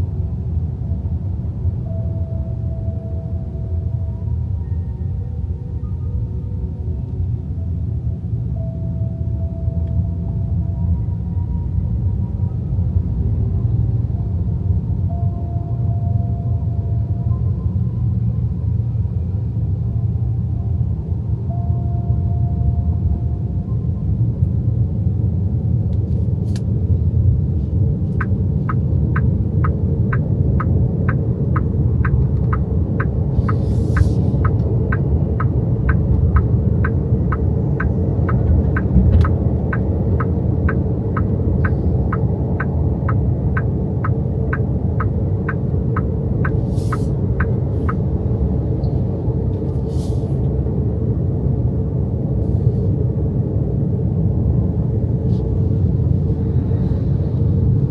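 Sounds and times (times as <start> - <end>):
road and tyre rumble: 0.0 - 57.9
turn signal ticking: 27.7 - 49.6.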